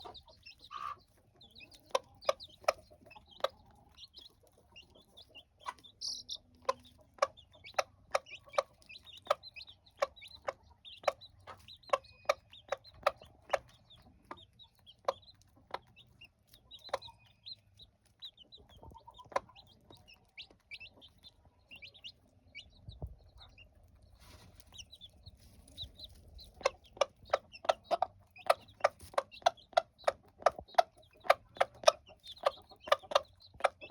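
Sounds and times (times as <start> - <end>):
chicks peeping: 0.0 - 33.9
hen clucking: 0.0 - 33.9.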